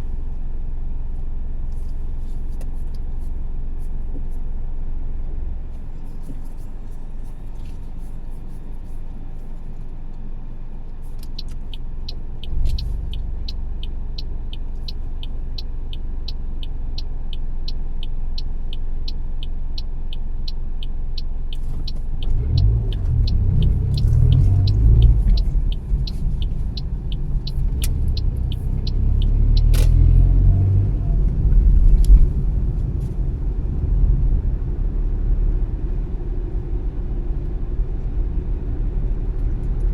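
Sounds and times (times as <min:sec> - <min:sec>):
car engine and road rumble: 0:00.0 - 0:39.9
turn signal ticking: 0:10.1 - 0:39.9.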